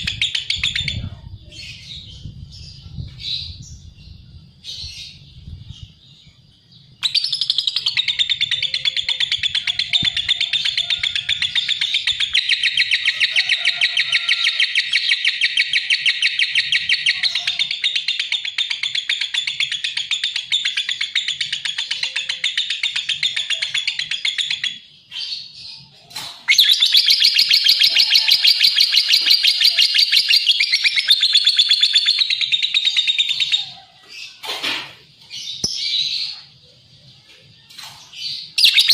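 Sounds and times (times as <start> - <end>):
lovebird chattering: 26.5 - 33.6, 38.6 - 38.9.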